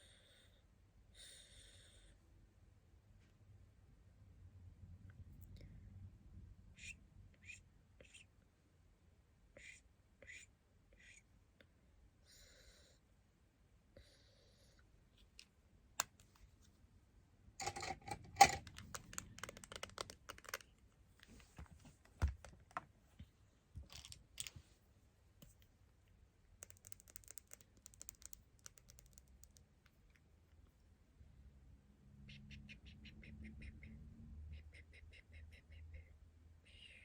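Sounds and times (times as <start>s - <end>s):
small parts clicking and rattling: 17.6s - 20.8s, 23.8s - 24.6s, 26.6s - 29.6s.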